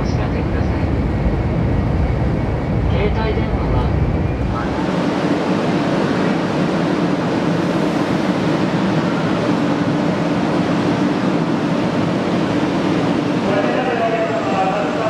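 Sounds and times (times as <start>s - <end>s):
train rushing noise: 0.0s - 15.0s.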